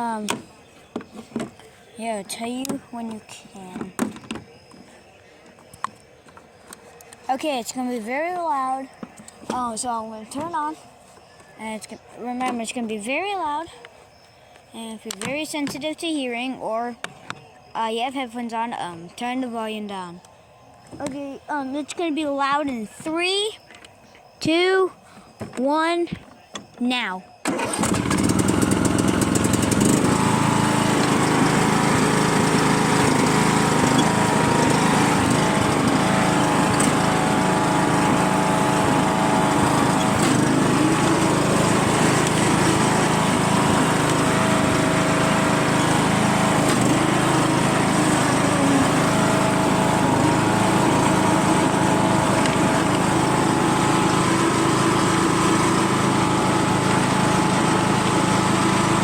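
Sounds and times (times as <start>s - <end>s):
tractor engine running: 27.4s - 59.0s.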